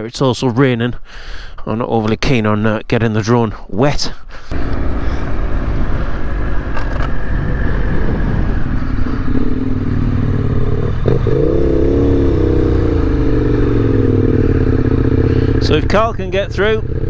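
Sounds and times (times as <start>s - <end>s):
motorcycle engine running: 4.5s - 17.0s
wind rumble on microphone: 4.6s - 17.0s.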